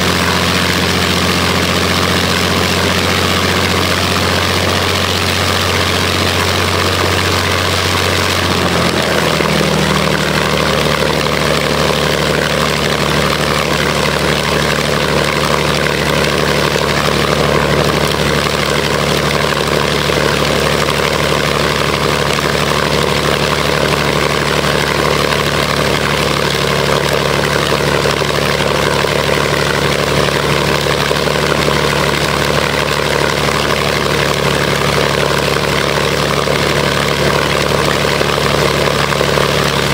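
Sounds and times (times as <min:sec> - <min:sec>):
aero engine running: 0:00.0 - 0:39.9.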